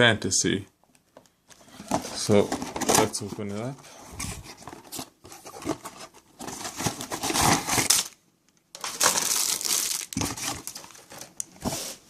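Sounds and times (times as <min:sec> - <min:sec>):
cardboard box crinkling and scraping: 0:01.6 - 0:08.1, 0:08.8 - 0:12.0.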